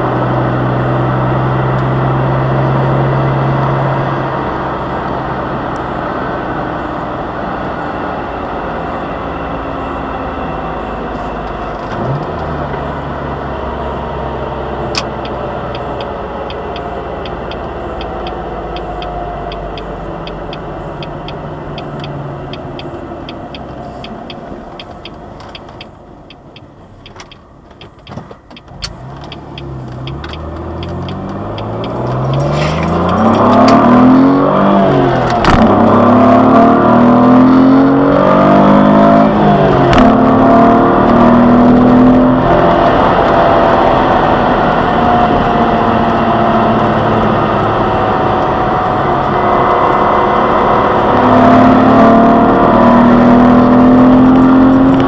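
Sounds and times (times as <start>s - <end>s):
car engine accelerating: 0.0s - 55.0s
gear upshifts: 14.8s - 55.0s.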